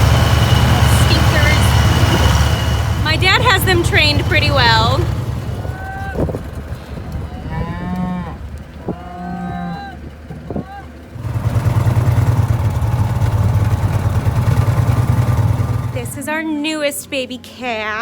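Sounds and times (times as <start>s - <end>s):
low engine hum: 0.0s - 18.0s
cattle mooing: 5.6s - 11.0s.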